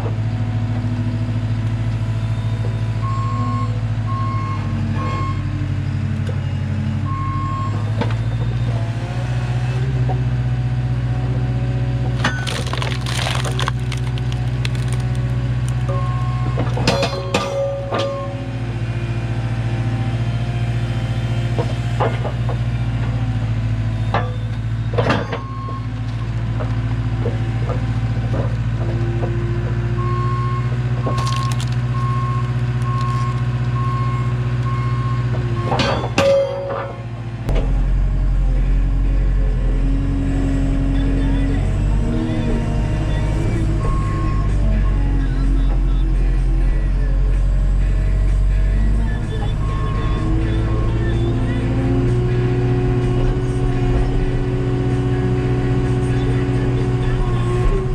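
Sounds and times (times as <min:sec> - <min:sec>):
skid steer engine running: 0:00.0 - 0:57.9
reversing alarm beeping: 0:02.3 - 0:08.7, 0:24.0 - 0:26.3, 0:29.9 - 0:37.0, 0:42.3 - 0:46.2, 0:48.8 - 0:54.2
wood splitting cracks: 0:12.2 - 0:15.9, 0:31.0 - 0:32.1, 0:32.7 - 0:33.4.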